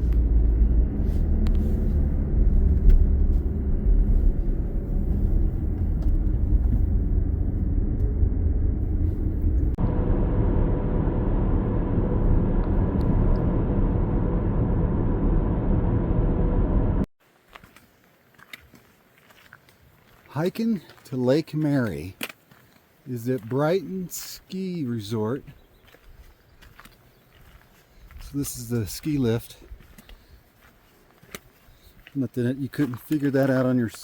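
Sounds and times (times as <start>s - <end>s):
car road noise: 0.0s - 17.1s.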